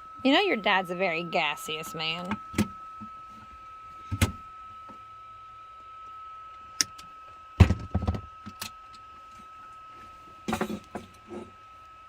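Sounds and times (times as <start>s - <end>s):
steady high-pitched tone: 0.0s - 6.4s.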